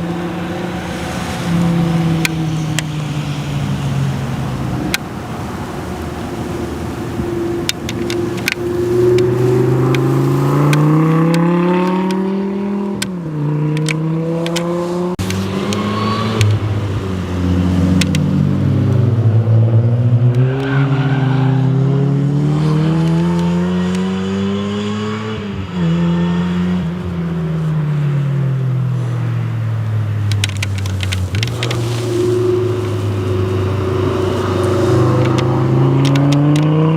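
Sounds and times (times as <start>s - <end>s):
car engine revving hard: 8.0s - 27.0s, 31.3s - 36.9s.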